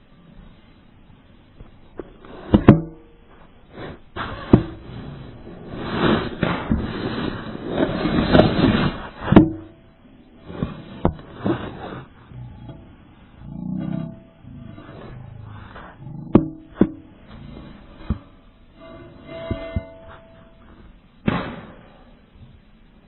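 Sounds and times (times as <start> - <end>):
rough noise: 1.9 - 22.3
sharp knocks: 16.2 - 17.1.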